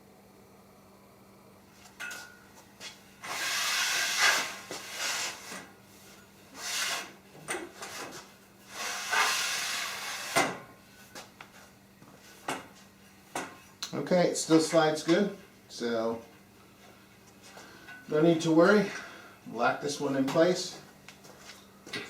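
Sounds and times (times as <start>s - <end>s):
saw table bridge sliding on rail: 3.2s - 5.6s, 7.8s - 10.4s.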